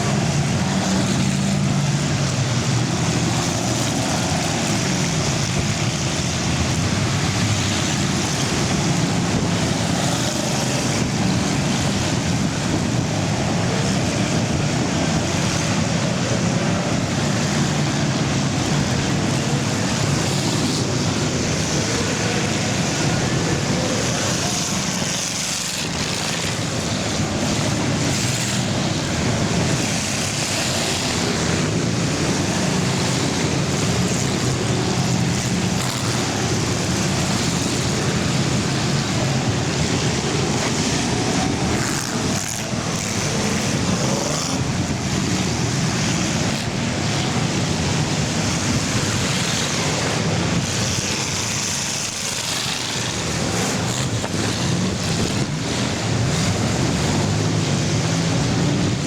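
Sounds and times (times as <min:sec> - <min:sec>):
racing car engines: 0:00.0 - 0:59.0.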